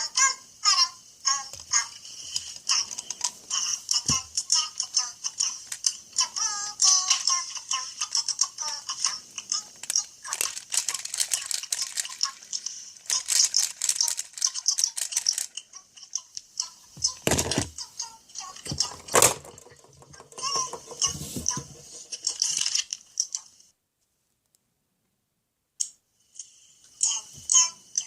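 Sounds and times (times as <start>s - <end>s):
plastic toy pieces rattling: 7.0s - 16.2s, 17.2s - 17.8s, 18.6s - 23.0s.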